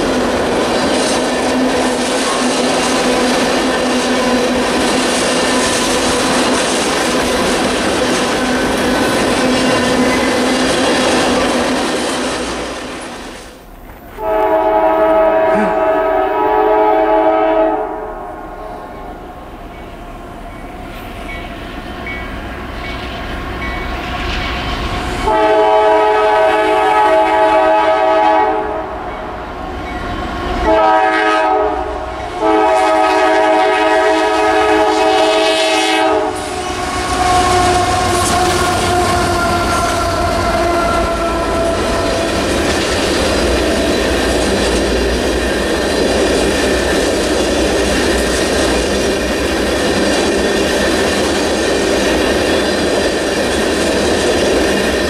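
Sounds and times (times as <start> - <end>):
locomotive horn blasts: 14.2 - 18.9, 25.2 - 28.9, 30.6 - 42.2
locomotives rumbling past: 36.2 - 55.0.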